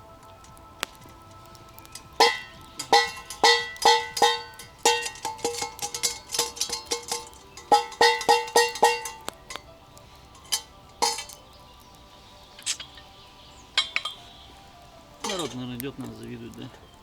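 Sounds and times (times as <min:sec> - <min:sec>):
spoon clinking on metal mug: 0:02.2 - 0:09.2.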